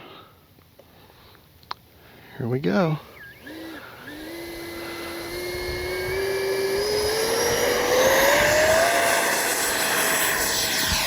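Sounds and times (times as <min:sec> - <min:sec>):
electric ducted fan whine: 0:03.0 - 0:11.0.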